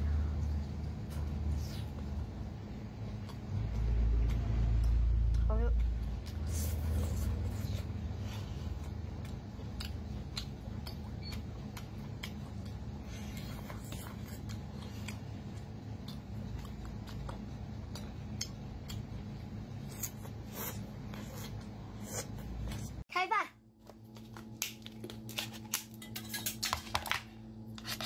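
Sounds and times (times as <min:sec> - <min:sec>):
steady low hum: 0:00.0 - 0:28.0
wet chewing clicks and smacks: 0:03.0 - 0:07.9, 0:08.8 - 0:20.4.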